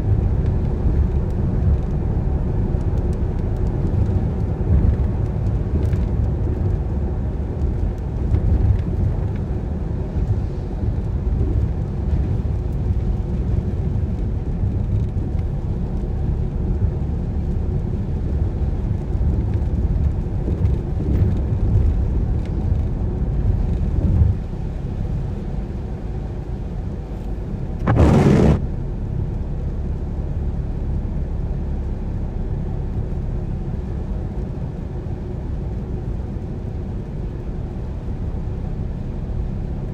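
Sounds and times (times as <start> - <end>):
car driving on wet road: 0.0 - 39.9
loud whoosh: 27.8 - 28.7.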